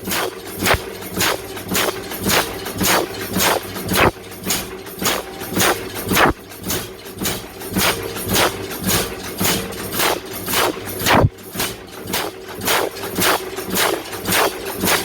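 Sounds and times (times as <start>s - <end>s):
steady hum: 0.0s - 4.2s, 5.0s - 6.4s, 10.0s - 11.3s
hammer striking hot iron: 0.1s - 6.4s.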